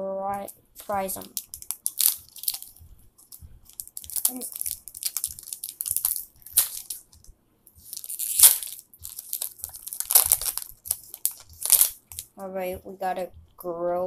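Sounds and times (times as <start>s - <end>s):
wrapper tearing and crinkling: 0.8s - 2.7s, 3.7s - 7.2s, 7.8s - 12.3s.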